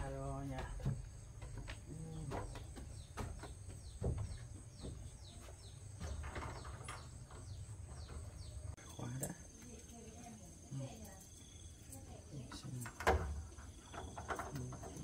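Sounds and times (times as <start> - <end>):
small birds chirping: 0.0 - 15.0
soft knocks: 0.5 - 8.3.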